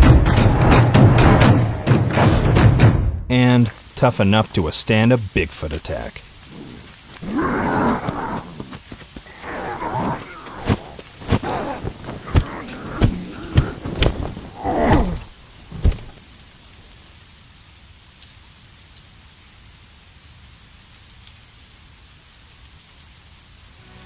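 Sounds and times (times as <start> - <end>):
creature growling roars: 6.5 - 13.9, 14.5 - 15.3.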